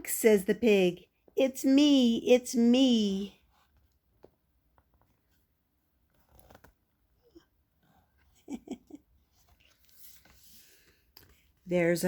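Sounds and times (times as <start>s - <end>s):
book pages rustling and turning: 3.4s - 7.2s, 9.2s - 11.8s.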